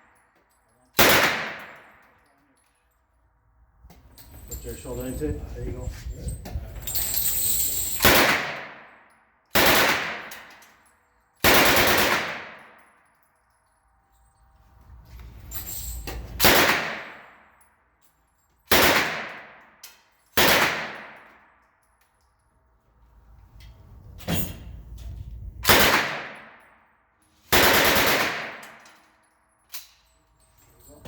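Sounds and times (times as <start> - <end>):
submachine gun bursts echoing: 9.5 - 10.4, 11.4 - 12.8, 27.5 - 28.8.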